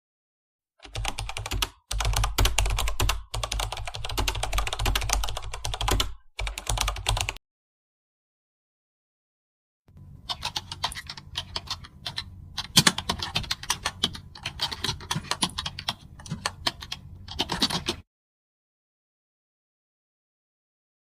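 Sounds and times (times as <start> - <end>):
typing on a keyboard: 0.8 - 7.4, 10.3 - 18.0.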